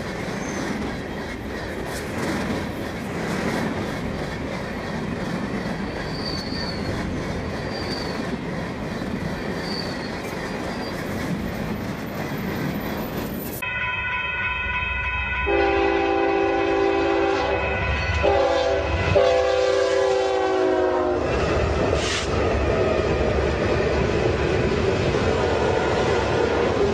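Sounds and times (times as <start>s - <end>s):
freight train rumbling past: 0.0s - 26.9s
wheel squeals: 0.3s - 0.8s, 5.6s - 8.4s, 9.2s - 13.6s
locomotive air horn: 15.4s - 21.2s.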